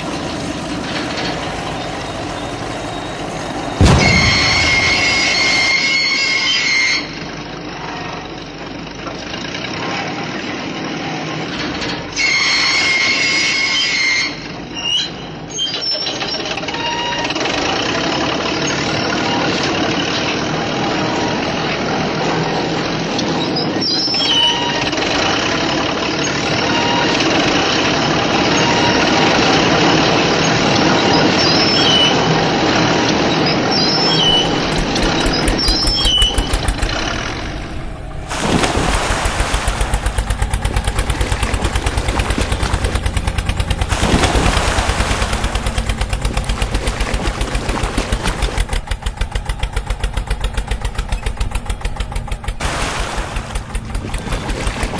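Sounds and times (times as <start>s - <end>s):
truck engine noise: 0.0s - 54.9s
high horn-like tone: 3.8s - 8.1s, 12.2s - 14.4s
fast even rattle: 33.6s - 54.9s.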